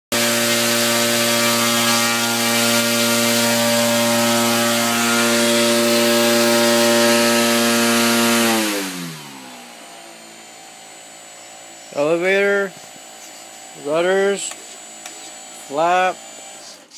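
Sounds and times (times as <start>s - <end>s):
model airplane motor whining: 0.2s - 16.9s.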